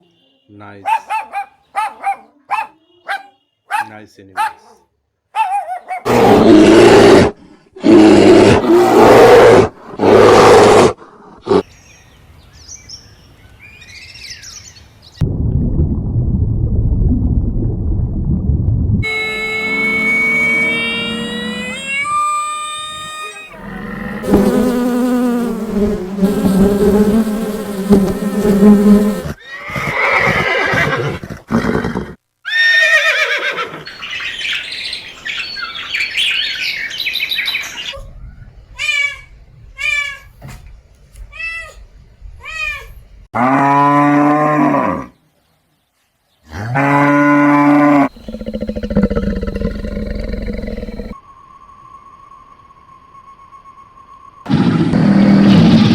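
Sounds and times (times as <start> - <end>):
animal calls: 0.8 - 4.8, 19.0 - 25.2, 48.0 - 51.2
long low animal calls: 19.0 - 25.0, 47.7 - 51.2.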